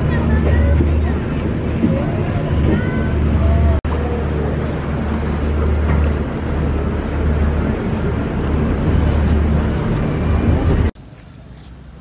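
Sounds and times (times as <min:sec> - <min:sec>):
noisy wash: 0:00.0 - 0:12.0
vehicle engine rumbling: 0:00.0 - 0:12.0.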